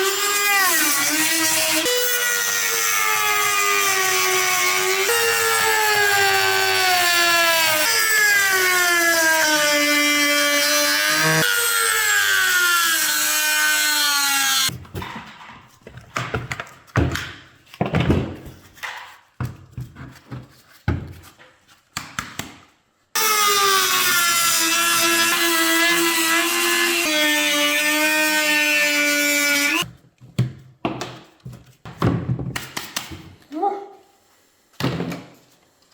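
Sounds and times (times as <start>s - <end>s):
power tool cutting: 0.0s - 14.7s, 23.2s - 29.9s.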